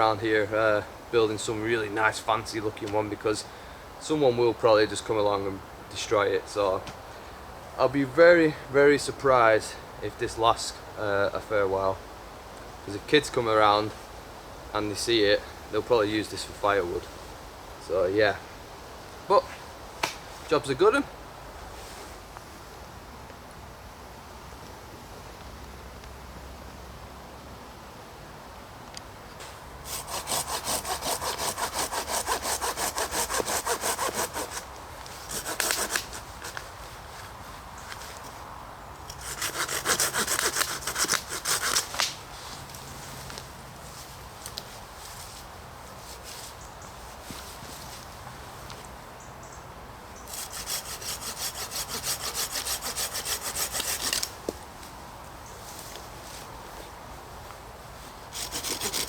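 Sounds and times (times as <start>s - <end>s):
hand saw cutting wood: 29.8s - 36.7s, 39.1s - 42.2s, 50.3s - 54.4s, 58.3s - 59.0s.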